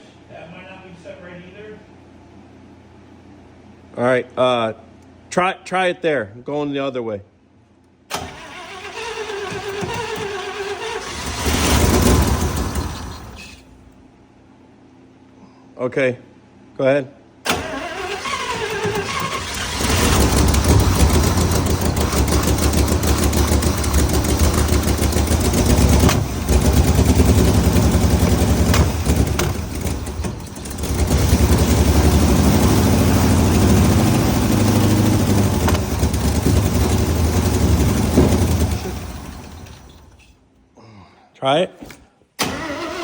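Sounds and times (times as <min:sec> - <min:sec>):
truck engine running roughly: 0:08.2 - 0:13.6, 0:17.5 - 0:40.2.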